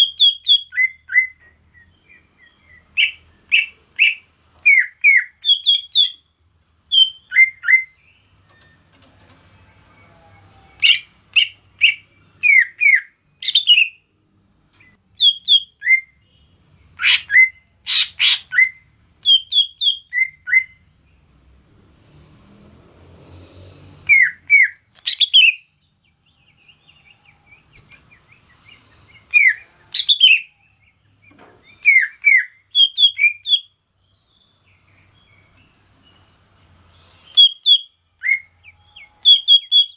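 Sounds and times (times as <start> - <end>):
bird whistling calls: 0.0 - 6.2, 6.9 - 8.0, 10.8 - 14.0, 15.2 - 16.1, 17.0 - 20.8, 24.0 - 25.7, 28.6 - 30.6, 31.3 - 33.7, 37.2 - 39.9.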